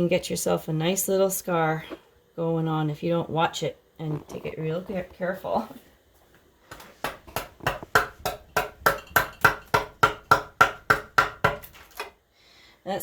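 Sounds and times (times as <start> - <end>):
mallet striking wood chisel: 7.0 - 12.1.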